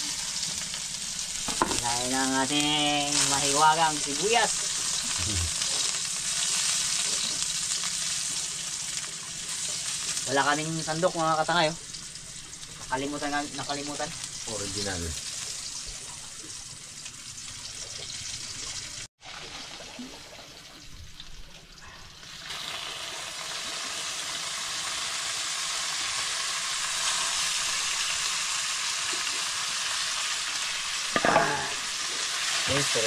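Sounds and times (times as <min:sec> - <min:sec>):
squid sizzling in a pan: 0:00.0 - 0:19.1, 0:22.2 - 0:33.0
short voice: 0:05.2 - 0:05.5.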